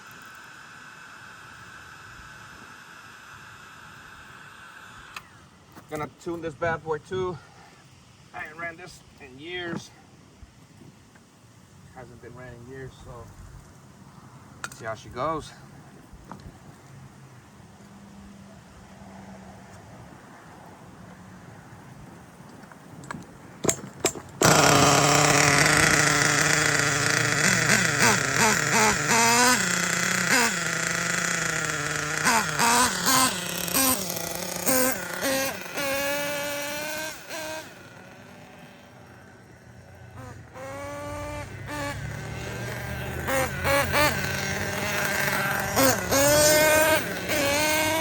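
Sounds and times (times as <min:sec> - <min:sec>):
small nitro engine revving: 0:00.0 - 0:05.5, 0:23.6 - 0:48.0.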